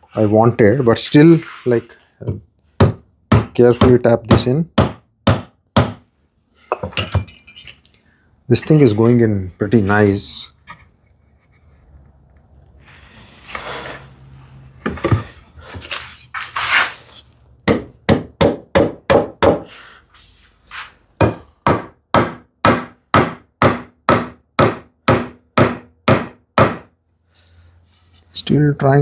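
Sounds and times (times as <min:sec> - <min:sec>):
workpiece handling and knocking: 0:06.7 - 0:07.9, 0:14.8 - 0:16.5.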